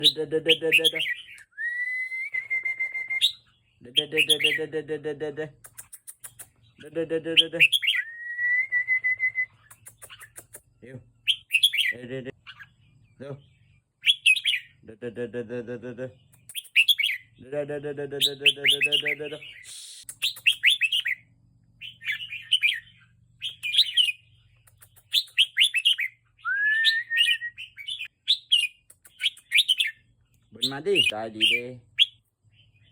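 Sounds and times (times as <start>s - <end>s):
person whistling: 1.6s - 3.2s, 8.1s - 9.5s, 26.4s - 27.6s
bird chattering calls: 5.6s - 8.0s, 9.6s - 13.4s, 16.1s - 17.4s, 18.2s - 21.2s, 21.8s - 26.2s, 27.2s - 32.2s.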